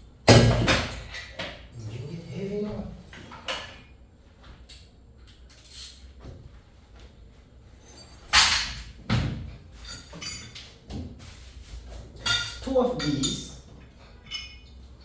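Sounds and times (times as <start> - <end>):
tools rustling and knocking: 7.8 - 11.2, 11.9 - 14.8.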